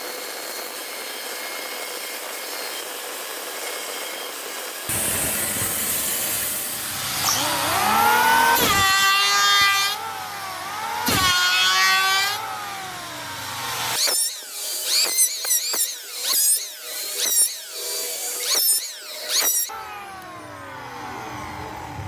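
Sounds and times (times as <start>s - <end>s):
power tool motor whining: 0.6s - 22.0s
short falling high-pitched whines: 4.9s - 15.9s.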